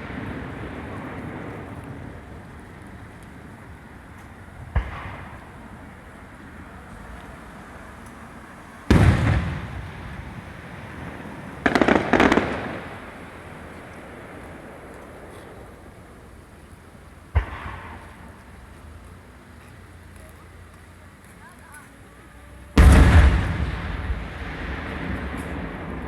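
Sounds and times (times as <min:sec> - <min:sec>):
firework pops: 0:04.1 - 0:05.7, 0:11.6 - 0:16.2, 0:17.3 - 0:18.6, 0:22.8 - 0:26.0
firework bang: 0:04.6 - 0:05.7, 0:08.9 - 0:13.4, 0:17.3 - 0:18.4, 0:22.8 - 0:26.0
firework boom rumbling: 0:08.9 - 0:13.4, 0:22.8 - 0:26.0.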